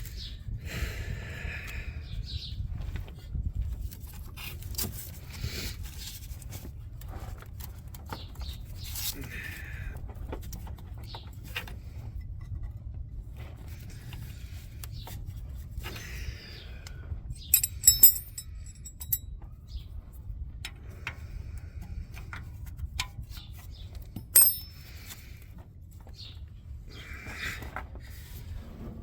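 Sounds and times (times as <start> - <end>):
low steady rumble: 16.9 - 22.1
metal clinking and rattling: 17.5 - 19.2, 24.2 - 25.0.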